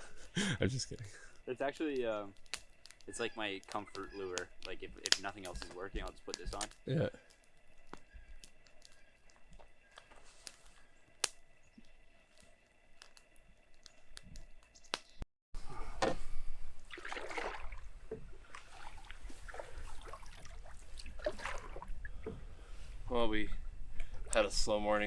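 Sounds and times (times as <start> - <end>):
water sloshing and splashing: 16.0 - 22.6.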